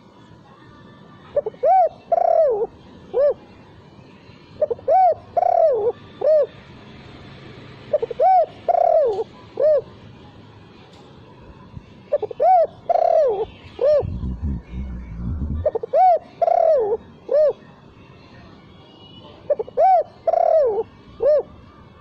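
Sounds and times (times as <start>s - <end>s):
dove cooing: 1.4s - 3.4s, 4.6s - 6.5s, 7.9s - 9.9s, 12.1s - 17.6s, 19.5s - 21.4s.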